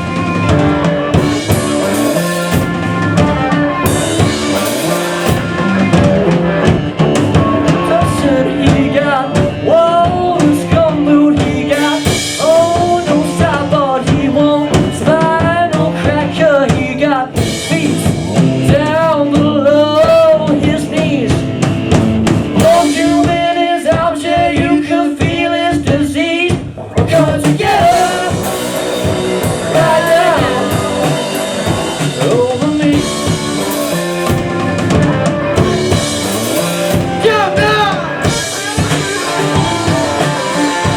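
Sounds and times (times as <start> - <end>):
drum kit beat: 0.0 - 40.9
rock band playing: 0.0 - 40.9
wavering lead line: 27.9 - 40.9.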